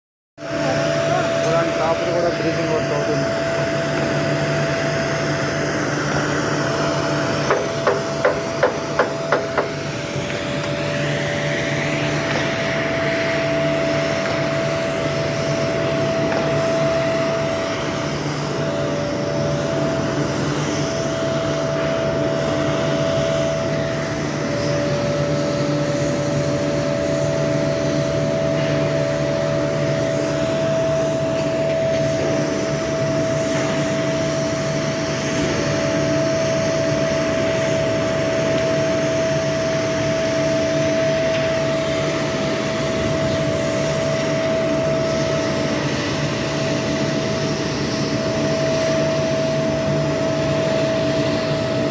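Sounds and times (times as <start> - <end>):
industrial machinery drone: 0.4 - 51.9.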